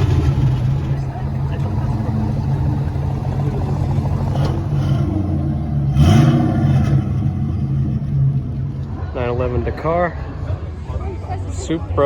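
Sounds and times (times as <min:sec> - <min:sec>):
car engine running: 0:00.0 - 0:09.5.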